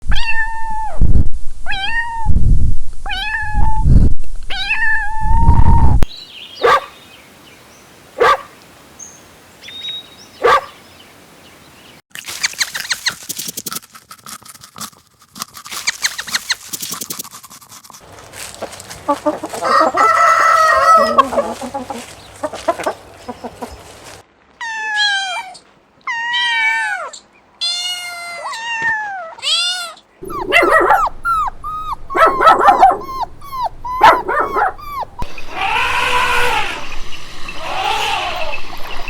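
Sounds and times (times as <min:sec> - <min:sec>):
cat meowing: 0:00.1 - 0:01.0, 0:01.7 - 0:02.4, 0:03.1 - 0:03.8, 0:04.5 - 0:05.6, 0:24.6 - 0:36.7.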